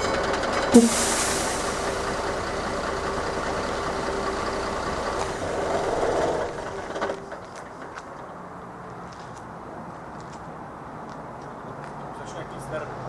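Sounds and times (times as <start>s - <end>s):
held tone: 0.0s - 3.2s
train rumbling over crossing: 0.0s - 8.7s.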